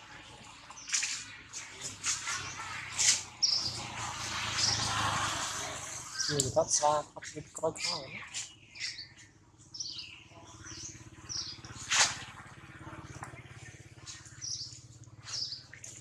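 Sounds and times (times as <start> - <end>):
small birds chirping: 0.4 - 5.1, 5.8 - 16.0.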